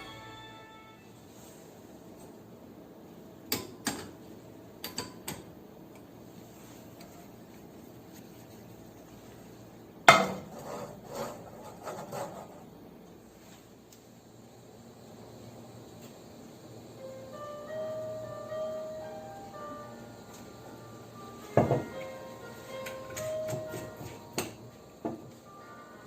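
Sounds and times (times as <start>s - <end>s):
kitchenware clinking and knocking: 21.6s - 22.0s.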